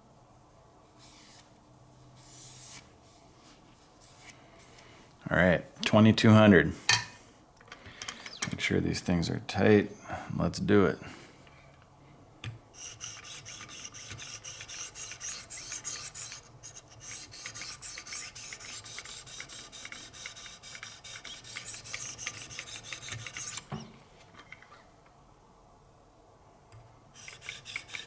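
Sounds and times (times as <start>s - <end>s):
sharpening stones scraping knife edge: 27.2s - 28.0s.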